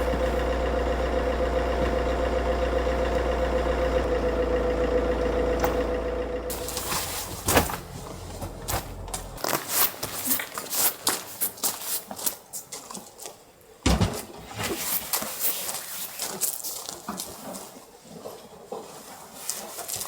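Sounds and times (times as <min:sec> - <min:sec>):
low engine hum: 0:00.0 - 0:09.4.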